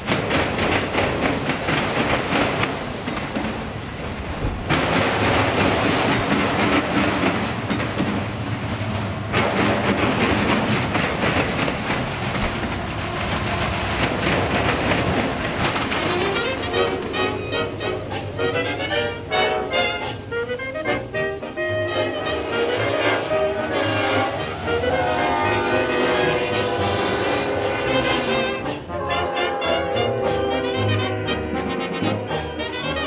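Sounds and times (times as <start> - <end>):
wheels clacking over rail joints: 0.0 - 22.0
freight train cars rumbling: 0.0 - 33.0.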